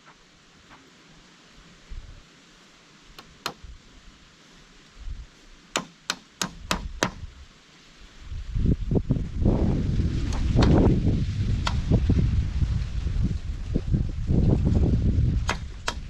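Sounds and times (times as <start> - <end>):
sharp knocking blows: 5.8 - 7.2, 15.4 - 16.0.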